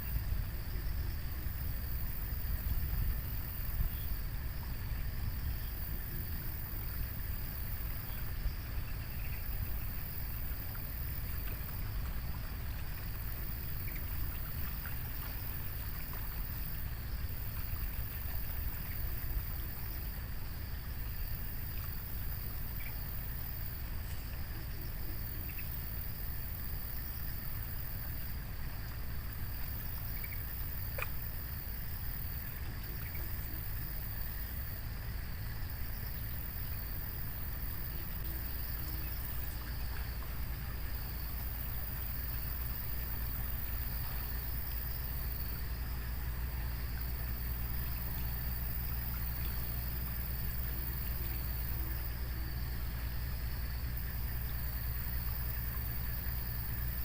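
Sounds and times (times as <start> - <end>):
high insect hiss: 0.0 - 57.0
low rumble of water or wind: 0.0 - 57.0
faint ticks: 8.1 - 20.1, 21.6 - 28.0, 29.5 - 34.7.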